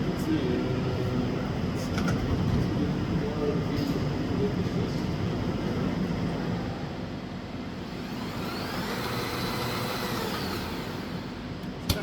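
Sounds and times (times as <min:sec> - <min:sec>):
machine humming: 0:07.7 - 0:11.9
motor whine rising and falling: 0:07.8 - 0:11.4.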